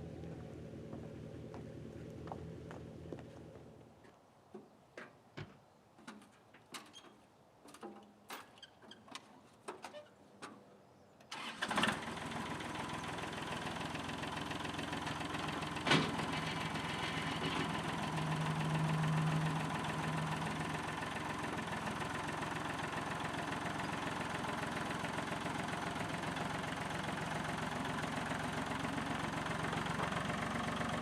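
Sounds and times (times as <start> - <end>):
engine starting and idling: 11.3 - 31.0.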